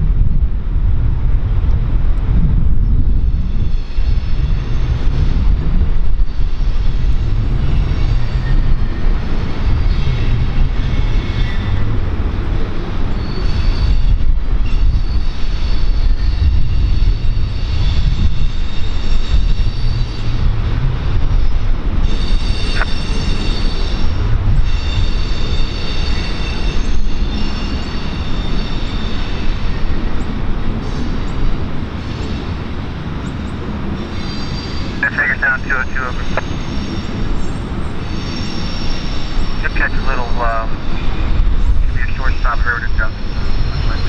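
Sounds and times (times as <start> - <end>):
freight train wheels rumbling: 0.0 - 44.0
high-pitched wheel squeal: 13.1 - 20.6, 21.4 - 30.2, 34.1 - 35.0, 36.4 - 39.6.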